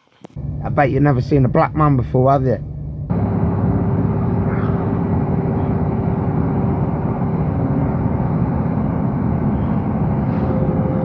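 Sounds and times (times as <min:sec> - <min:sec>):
faint constant hum: 0:00.0 - 0:11.0
train rumble from inside carriage: 0:02.7 - 0:11.0.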